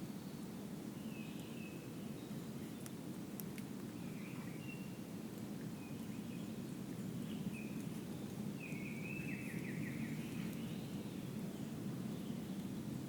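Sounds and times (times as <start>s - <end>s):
small birds chirping and warbling: 1.0s - 3.0s, 5.8s - 12.6s.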